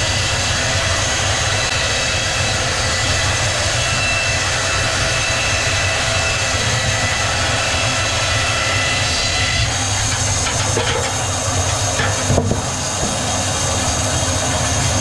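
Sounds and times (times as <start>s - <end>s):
sawmill machinery drone: 0.0s - 15.0s.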